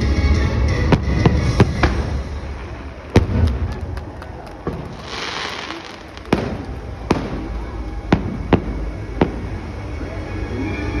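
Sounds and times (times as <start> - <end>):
fireworks bursting bangs: 0.8 - 9.9
fireworks hissing: 4.7 - 10.6.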